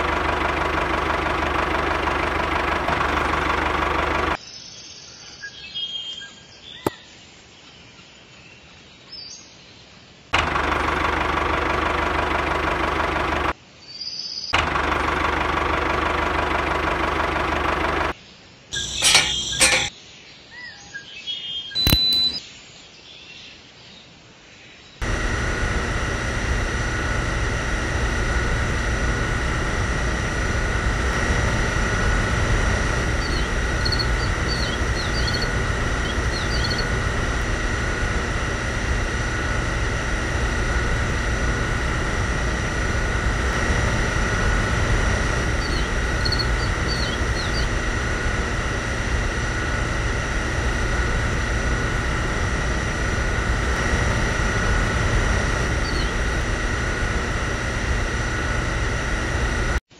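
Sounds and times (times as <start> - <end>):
small water pump motor whining: 0.0 - 4.4, 10.4 - 13.6, 14.6 - 18.2, 18.8 - 19.9, 25.0 - 59.8
bird chirps: 33.2 - 37.0, 45.6 - 47.7, 55.8 - 56.2.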